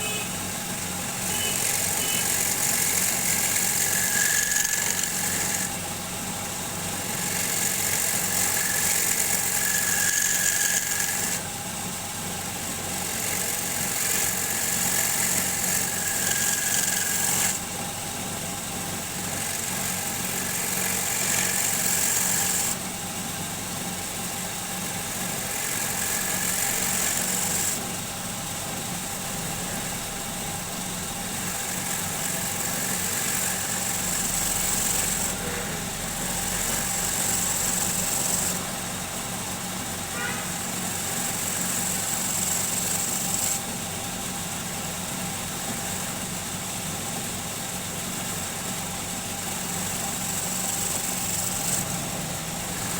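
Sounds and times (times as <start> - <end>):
tool cutting spinning wood hiss: 0.0 - 52.9
wood lathe motor hum: 0.0 - 52.9.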